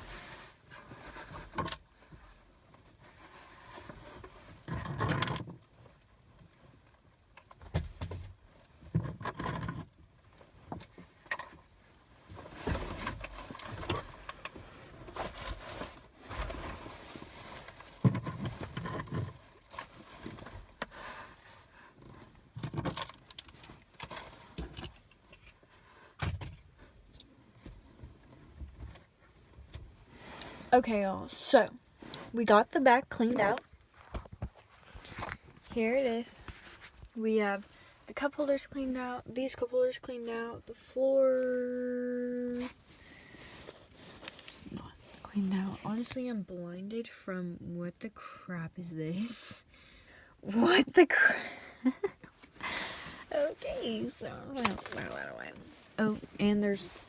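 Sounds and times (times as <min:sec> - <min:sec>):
objects rustling and knocking: 0:07.4 - 0:30.3, 0:33.1 - 0:37.7, 0:51.8 - 0:57.0.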